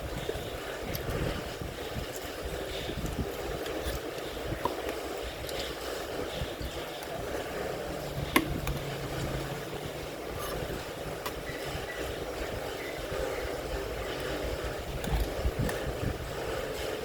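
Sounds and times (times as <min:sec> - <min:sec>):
steady rain: 0:00.0 - 0:17.0
low hum: 0:07.2 - 0:15.6.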